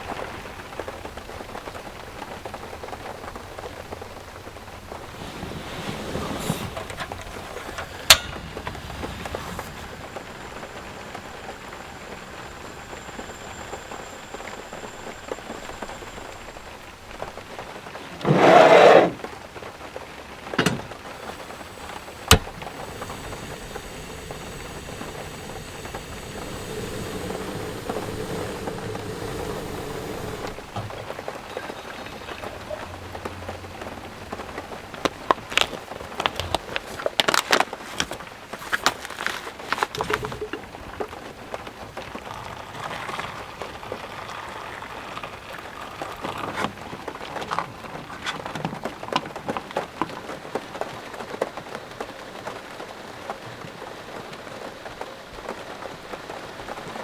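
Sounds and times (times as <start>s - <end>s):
heavy rain: 0.0s - 18.4s, 19.1s - 57.0s
loud burst of noise: 20.6s - 32.4s.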